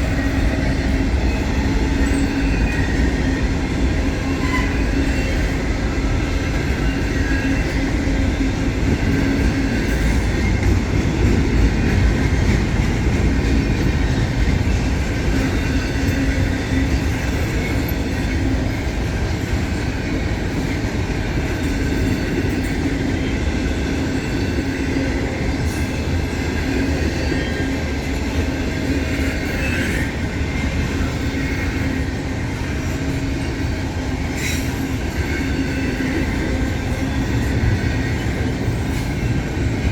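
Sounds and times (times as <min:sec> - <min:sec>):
train wheels rumbling on track: 0:00.0 - 0:39.9
high-pitched wheel squeal: 0:00.1 - 0:05.6.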